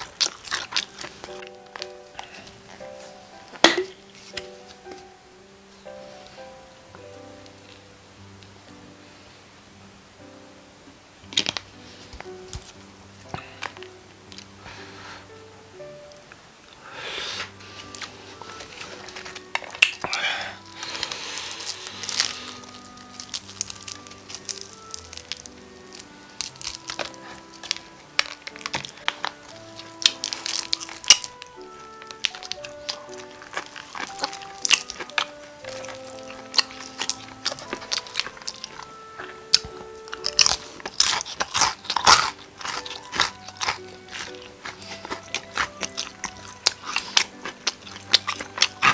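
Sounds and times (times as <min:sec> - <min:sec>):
fried chicken crunching: 0:00.0 - 0:02.8, 0:17.8 - 0:48.9.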